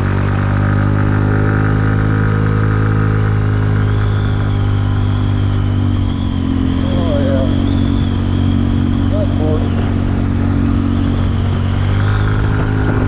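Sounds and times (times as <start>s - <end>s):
scooter engine running: 0.0s - 13.0s
faint high whine: 3.8s - 12.6s.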